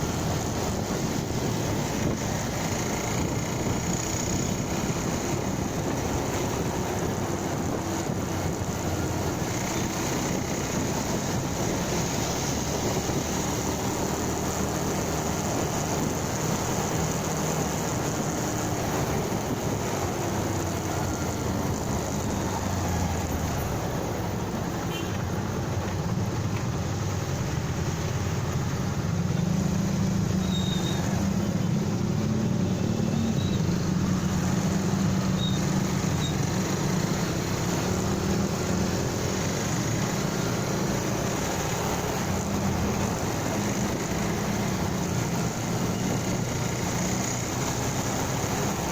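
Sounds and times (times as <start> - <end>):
road and wind noise: 0.0 - 48.9.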